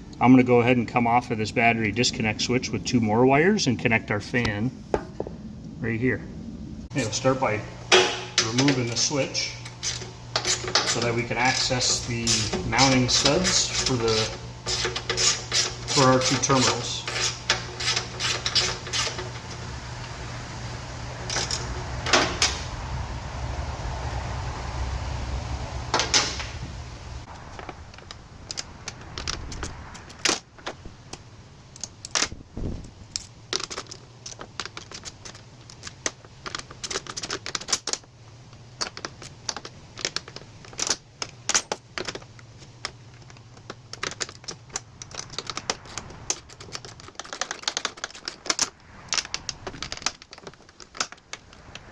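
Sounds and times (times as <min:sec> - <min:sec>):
low steady hum: 0:00.0 - 0:51.9
hand tools clinking on metal: 0:07.9 - 0:19.3.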